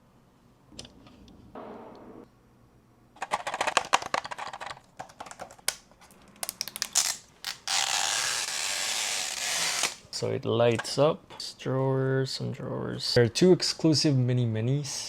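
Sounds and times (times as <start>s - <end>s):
plastic packaging crinkling: 3.2s - 8.0s.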